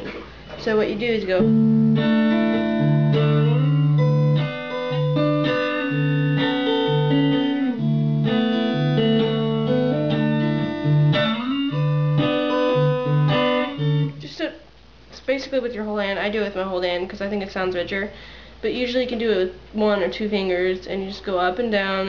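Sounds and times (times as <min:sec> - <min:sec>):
fingerstyle guitar: 0:00.0 - 0:14.5.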